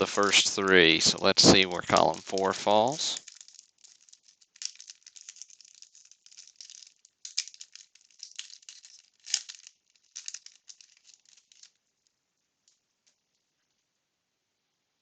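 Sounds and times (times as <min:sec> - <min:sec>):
cards rustling: 0:00.0 - 0:11.8
wax paper wrapper crinkling: 0:00.0 - 0:13.3.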